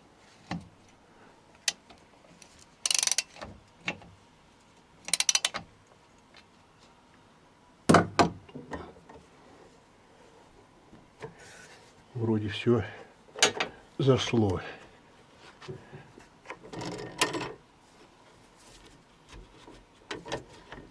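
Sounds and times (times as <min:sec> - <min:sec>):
ratchet wrench clicking: 0:02.8 - 0:03.4, 0:05.1 - 0:05.6.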